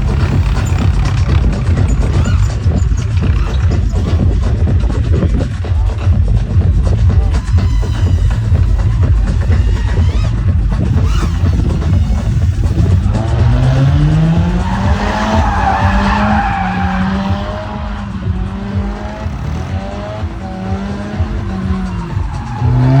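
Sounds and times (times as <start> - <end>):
motor vehicle engine drone: 0.0 - 23.0
screeching noise: 7.2 - 23.0.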